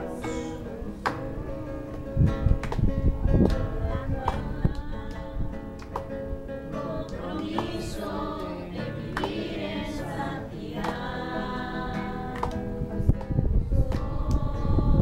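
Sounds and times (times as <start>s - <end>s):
acoustic guitar strumming: 0.0s - 15.0s
group singing: 3.4s - 15.0s.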